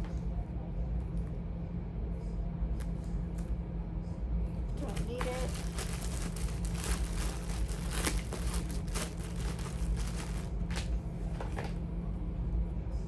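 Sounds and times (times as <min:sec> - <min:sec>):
steady low hum: 0:00.0 - 0:13.0
charging cords rustling and clicking: 0:04.8 - 0:11.8.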